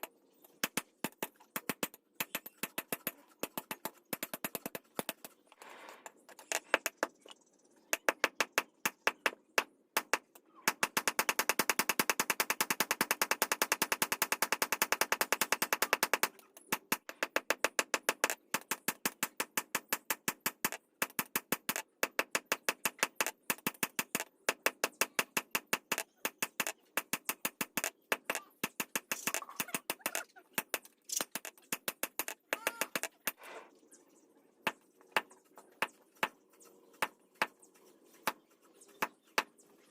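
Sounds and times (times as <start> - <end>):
rapid sharp tool strikes: 0.6 - 5.4, 7.9 - 33.4.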